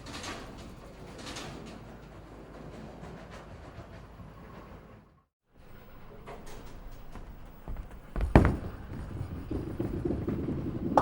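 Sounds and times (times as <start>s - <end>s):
bowling ball rolling down lane: 8.2s - 11.0s.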